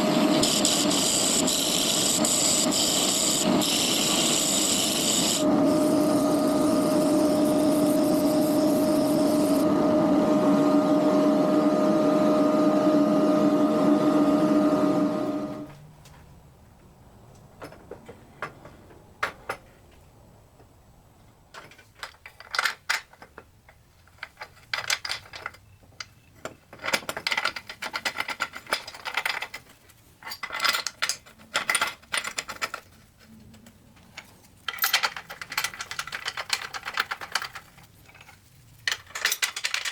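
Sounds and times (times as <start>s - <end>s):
electric power tool running: 0.0s - 15.7s
tools and parts clattering: 17.6s - 20.0s, 21.5s - 39.9s.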